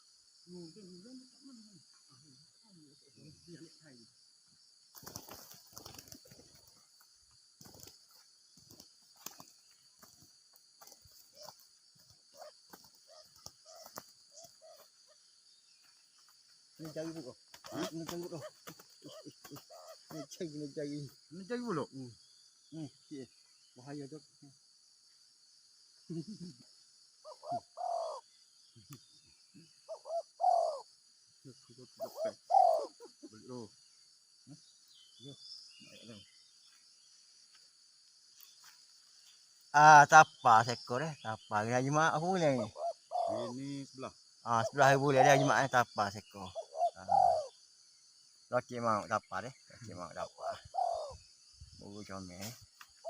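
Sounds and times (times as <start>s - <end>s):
insects buzzing: 0.0s - 53.0s
dove cooing: 8.6s - 15.2s, 16.8s - 20.5s, 27.2s - 28.3s, 29.6s - 30.9s, 31.5s - 33.7s, 42.3s - 43.8s, 44.6s - 47.6s, 50.1s - 51.3s.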